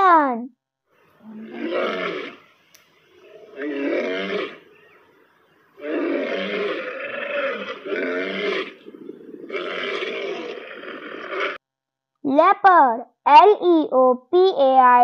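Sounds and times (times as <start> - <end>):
lions roaring: 1.2 - 2.4, 3.1 - 4.8, 5.8 - 11.6.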